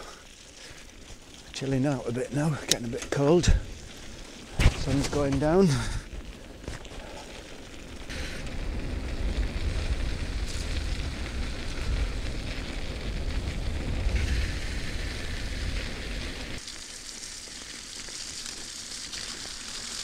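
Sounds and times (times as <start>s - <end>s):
bicycle tyres rolling on trail: 0.0s - 20.0s
wind rumbling on microphone: 3.4s - 16.6s.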